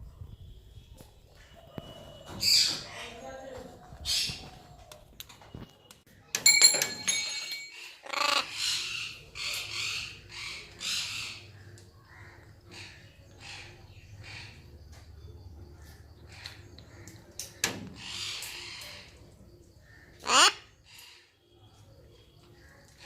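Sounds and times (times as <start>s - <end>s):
loud ringing rattle: 6.4s - 8.1s
parrot squawking: 8.0s - 11.4s, 20.2s - 20.7s.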